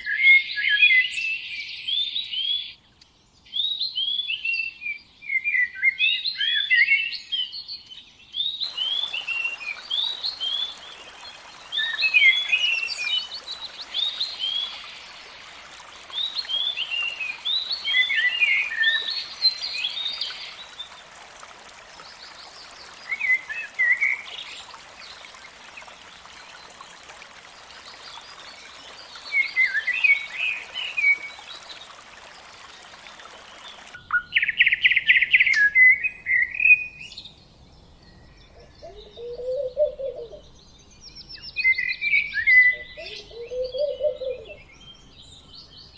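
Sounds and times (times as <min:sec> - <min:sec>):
steady background hiss: 0:08.6 - 0:45.9.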